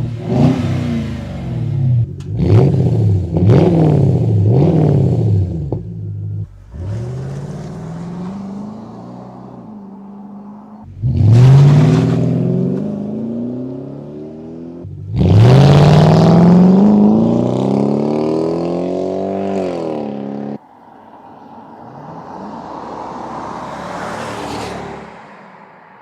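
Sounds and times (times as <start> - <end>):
car passing by: 20.7 - 26.0.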